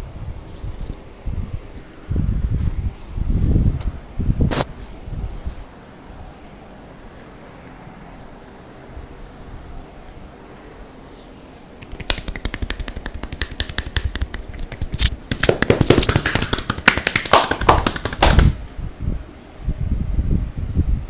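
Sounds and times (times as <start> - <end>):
hands tapping in massage: 11.8 - 18.6.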